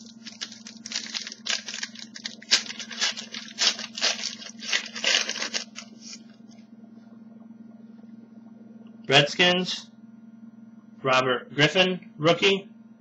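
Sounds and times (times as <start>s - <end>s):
cards and packaging rustling: 0.0s - 6.2s
low electrical hum: 0.0s - 13.0s.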